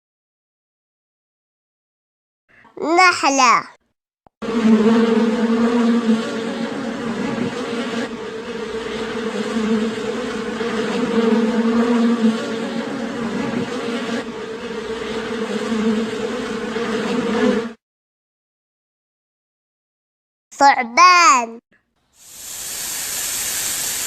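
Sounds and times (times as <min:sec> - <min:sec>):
bees buzzing: 0:04.4 - 0:17.8.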